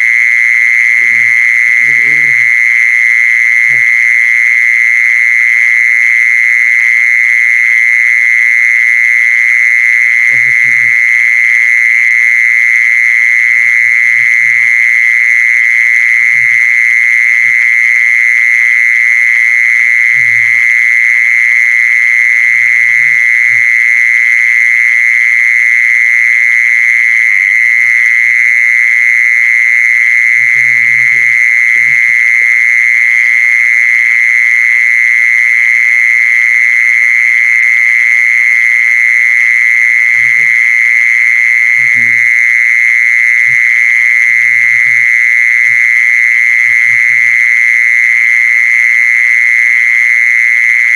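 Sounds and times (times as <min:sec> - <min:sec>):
high-pitched trilling animal call: 0:01.0 - 0:02.6.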